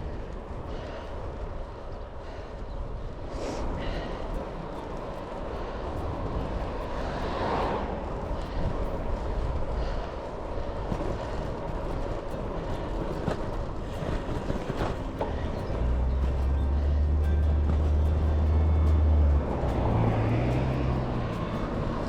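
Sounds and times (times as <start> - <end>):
wind and road noise: 0.0 - 22.0.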